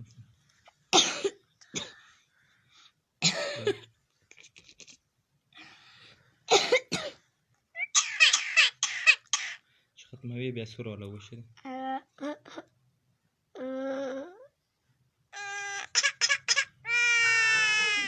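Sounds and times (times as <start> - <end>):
myna bird imitating coughing: 7.8 - 9.6.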